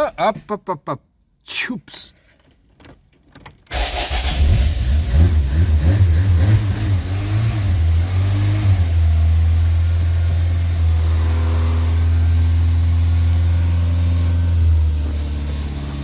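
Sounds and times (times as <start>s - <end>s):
car engine idling: 8.8s - 16.0s.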